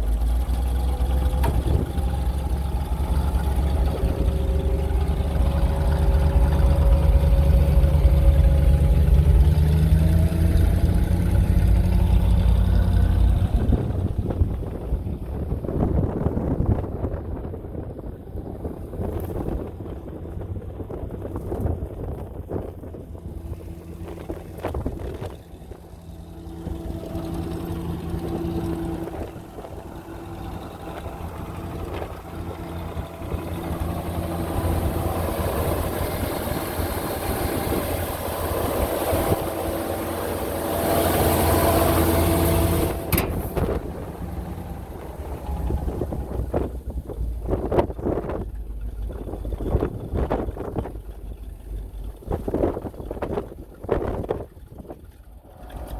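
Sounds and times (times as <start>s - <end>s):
truck engine running: 0.0s - 55.9s
wind noise on microphone: 1.4s - 55.9s.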